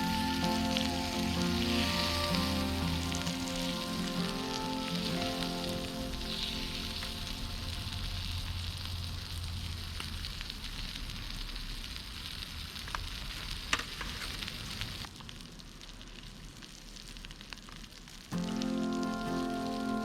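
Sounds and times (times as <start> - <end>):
food sizzling on a griddle: 0.0 - 20.0.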